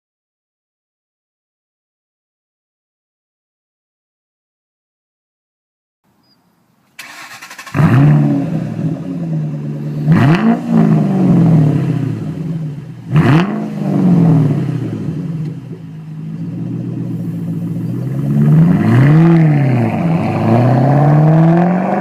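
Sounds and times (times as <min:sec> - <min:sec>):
car engine starting and revving: 0:06.9 - 0:22.0.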